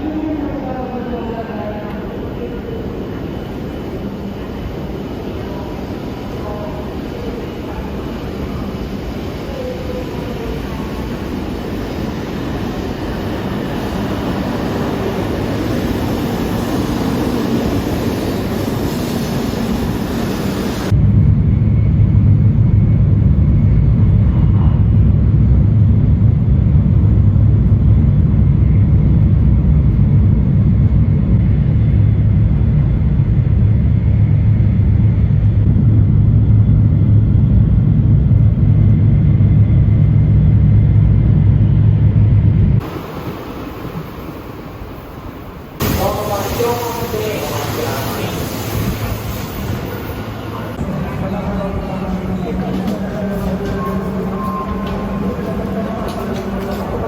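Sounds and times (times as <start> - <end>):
vehicle low rumble: 20.9 - 43.0.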